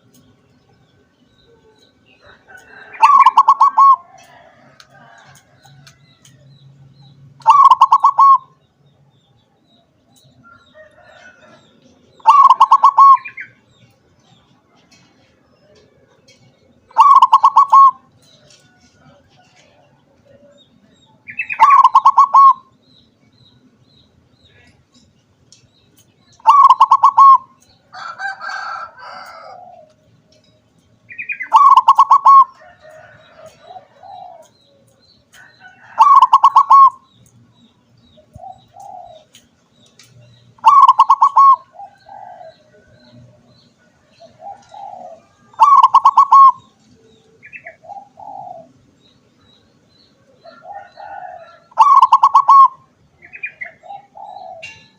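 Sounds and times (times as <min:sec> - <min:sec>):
soft bird calls: 0:00.0 - 0:54.9
dove cooing: 0:01.4 - 0:05.4, 0:07.4 - 0:08.5, 0:12.2 - 0:13.5, 0:16.9 - 0:20.6, 0:21.3 - 0:22.7, 0:26.4 - 0:30.4, 0:31.2 - 0:34.9, 0:35.7 - 0:37.0, 0:38.3 - 0:39.4, 0:40.6 - 0:48.8, 0:50.2 - 0:54.9.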